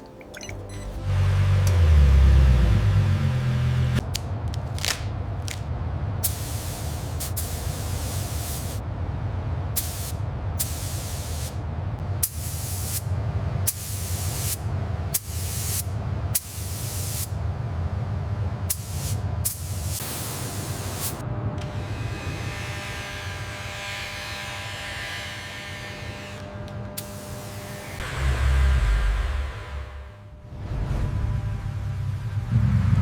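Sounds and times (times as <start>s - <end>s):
steady low hum: 0.0s - 33.0s
hissing spray bursts: 6.2s - 8.8s, 9.8s - 11.6s, 12.2s - 13.1s, 13.7s - 17.4s, 18.7s - 21.2s, 27.0s - 28.0s.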